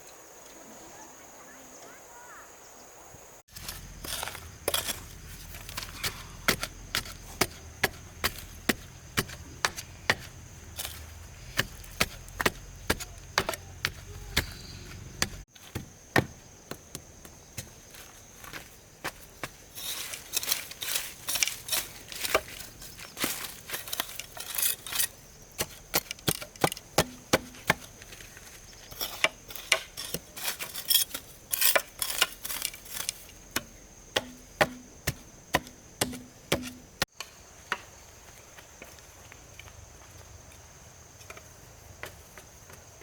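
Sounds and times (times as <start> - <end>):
high insect drone: 0.0 - 43.0
sharp chopping strikes: 33.6 - 36.9.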